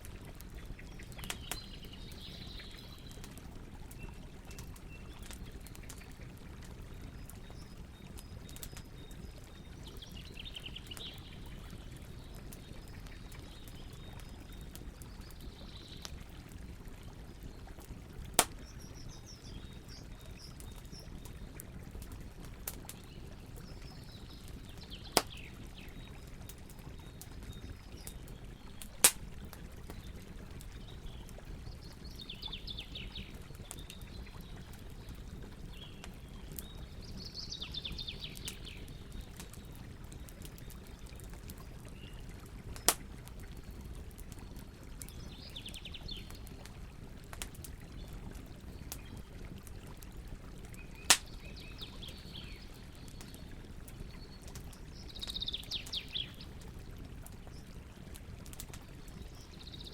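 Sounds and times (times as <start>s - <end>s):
campfire pops: 0.2s - 7.6s, 8.2s - 9.1s, 17.7s - 32.2s, 42.6s - 45.4s, 46.2s - 51.6s, 57.1s - 59.2s
birds singing: 0.5s - 3.3s, 3.9s - 16.2s, 18.5s - 21.6s, 22.8s - 29.0s, 29.9s - 42.2s, 44.4s - 46.5s, 50.8s - 56.5s, 58.8s - 59.9s.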